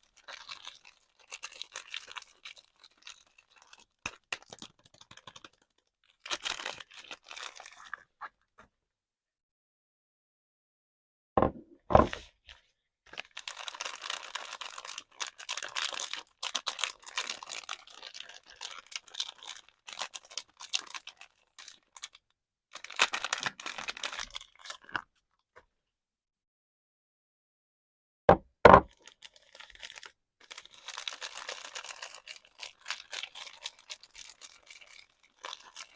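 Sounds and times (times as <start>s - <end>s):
packaging crackling and tearing: 0.0s - 8.1s, 13.1s - 25.0s, 28.9s - 35.9s
wrapping rustling: 13.1s - 22.2s, 28.9s - 35.9s.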